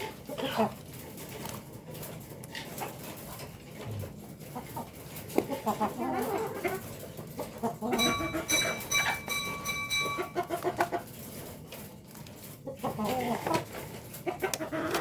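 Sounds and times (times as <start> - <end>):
chickens clucking: 0.0 - 15.0
high-pitched tone: 8.0 - 10.4.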